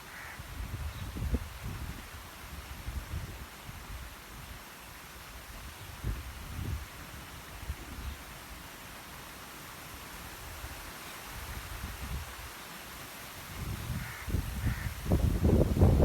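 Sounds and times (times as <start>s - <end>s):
wind rumble on microphone: 0.4s - 4.6s, 5.5s - 8.2s, 13.5s - 16.0s
bird calling harshly: 14.0s - 15.0s.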